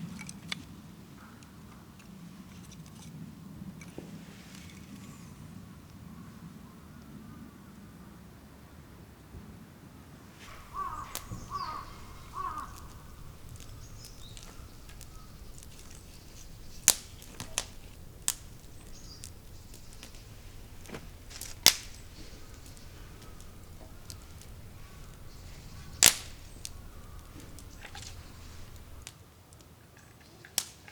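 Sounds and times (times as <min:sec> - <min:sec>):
bird calling: 0:10.4 - 0:29.1
sharp snaps: 0:10.4 - 0:29.1.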